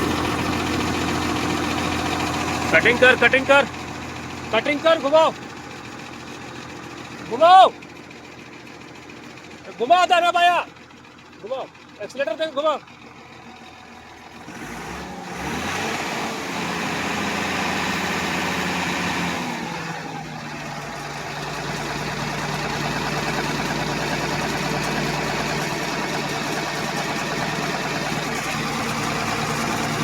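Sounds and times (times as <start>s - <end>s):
vehicle engine revving: 0.0s - 5.6s, 14.3s - 30.0s.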